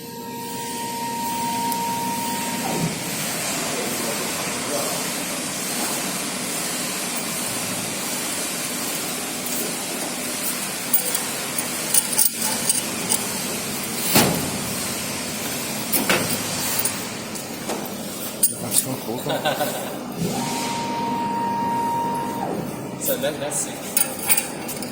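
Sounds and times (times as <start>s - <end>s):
steel plates clinking on metal: 9.5s - 14.5s, 24.0s - 24.9s.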